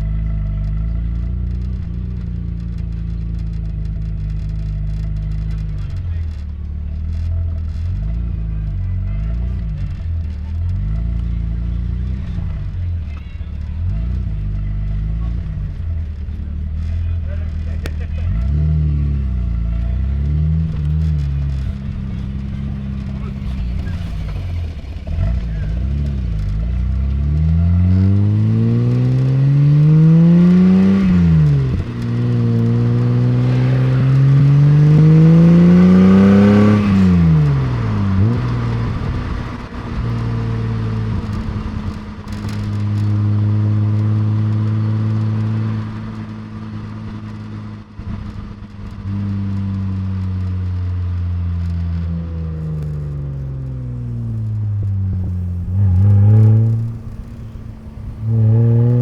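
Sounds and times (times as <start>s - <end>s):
car engine revving through gears: 13.6s - 51.0s, 51.6s - 59.0s.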